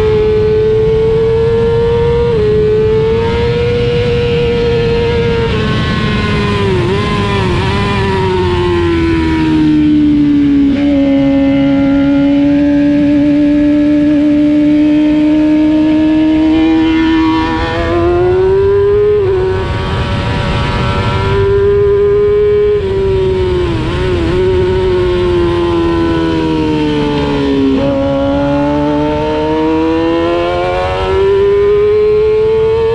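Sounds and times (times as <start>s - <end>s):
racing motorcycle engine revving: 0.0s - 32.9s
wind rush: 14.0s - 32.9s.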